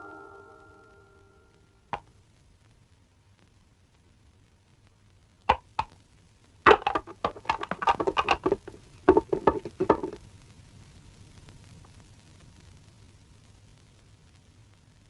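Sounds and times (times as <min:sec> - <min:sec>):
knocking and clattering: 0:06.7 - 0:10.2.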